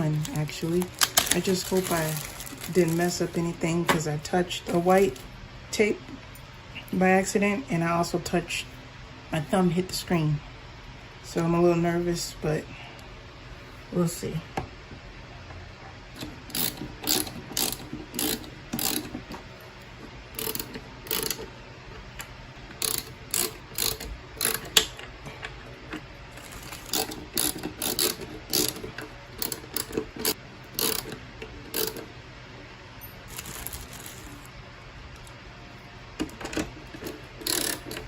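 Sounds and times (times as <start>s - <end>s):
ratcheting hand tool clicking: 16.5s - 19.1s, 20.4s - 21.4s, 22.8s - 24.9s, 26.7s - 28.8s, 37.0s - 38.0s.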